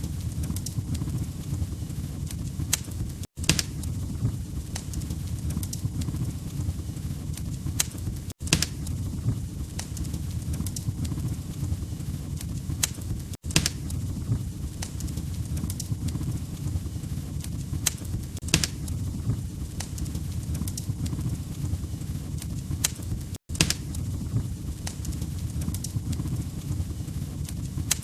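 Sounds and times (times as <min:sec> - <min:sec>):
burning logs popping: 0:00.0 - 0:28.0
flames low rumble: 0:00.0 - 0:28.0.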